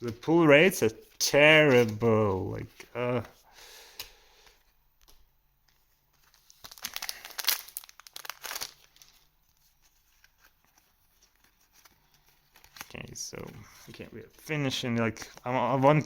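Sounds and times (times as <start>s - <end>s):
wrapper tearing and crinkling: 6.2s - 13.0s.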